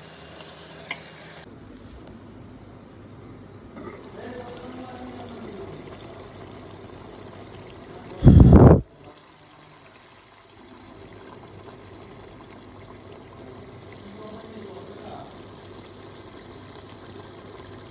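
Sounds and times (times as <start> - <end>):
faint watery bubbling: 8.0 - 8.8.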